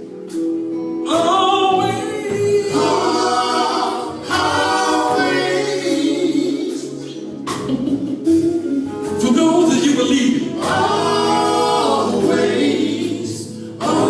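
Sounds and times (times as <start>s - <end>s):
vocal group singing in harmony: 1.1s - 7.6s, 10.4s - 14.0s.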